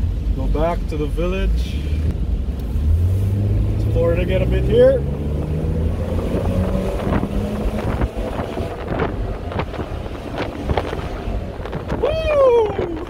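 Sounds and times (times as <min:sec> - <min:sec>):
car engine and road noise: 0:00.0 - 0:13.0
wind buffeting microphone: 0:05.2 - 0:13.0.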